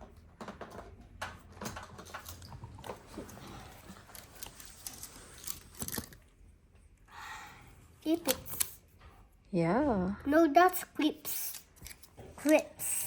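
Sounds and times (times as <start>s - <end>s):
small objects being handled: 1.8s - 6.3s.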